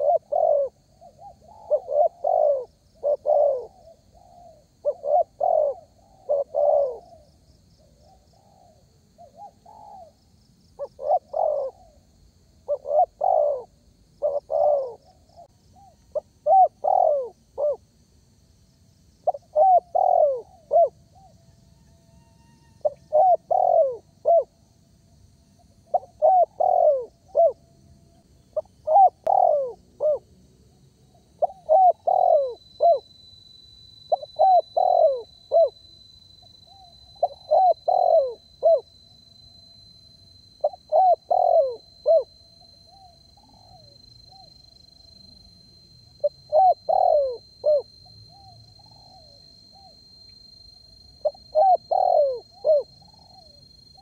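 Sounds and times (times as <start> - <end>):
dove cooing: 0.0 - 7.2, 8.0 - 10.2, 10.8 - 12.0, 12.7 - 17.8, 19.2 - 21.3, 22.8 - 24.5, 25.9 - 27.6, 28.6 - 30.3, 31.4 - 33.0, 34.1 - 35.8, 36.7 - 38.9, 40.6 - 42.3, 42.9 - 44.6, 46.2 - 50.0, 51.2 - 53.6.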